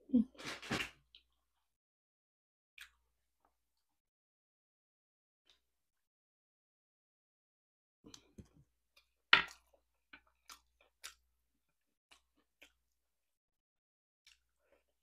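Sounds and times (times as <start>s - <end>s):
person chewing: 9.0s - 11.2s, 14.2s - 15.0s.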